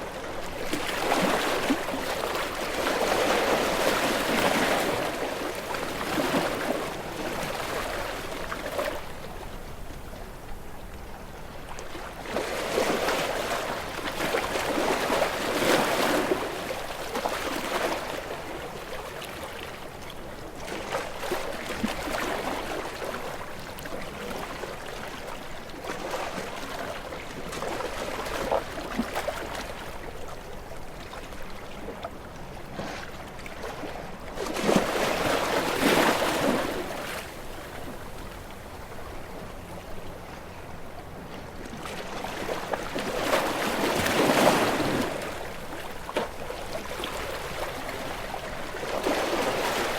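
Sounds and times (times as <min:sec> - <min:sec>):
ocean waves breaking: 0:00.0 - 0:09.6, 0:32.6 - 0:49.9.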